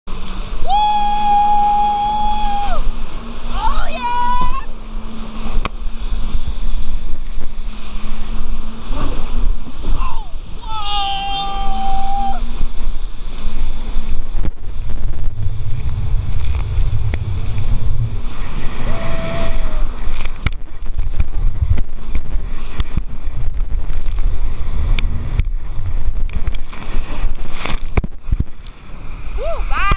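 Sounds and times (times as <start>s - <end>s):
jet ski engine humming: 0.1s - 29.9s
rushing water: 0.1s - 29.9s
wind buffeting microphone: 0.1s - 29.9s
water slapping and knocking: 14.0s - 18.8s
heavy engine rumble: 14.5s - 20.6s.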